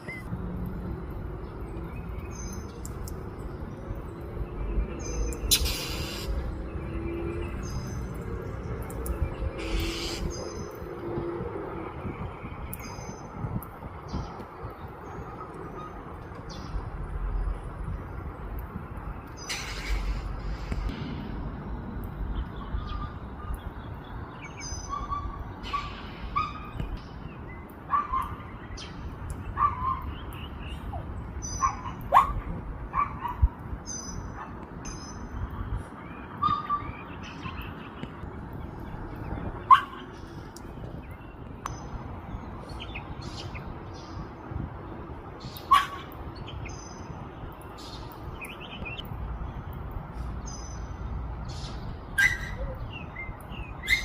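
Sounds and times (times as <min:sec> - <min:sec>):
small birds chirping: 0:01.0 - 0:10.9, 0:22.1 - 0:32.4, 0:33.0 - 0:54.0
steady low background noise: 0:11.8 - 0:31.6
dog barking: 0:31.6 - 0:33.4, 0:39.7 - 0:40.0, 0:45.7 - 0:46.1.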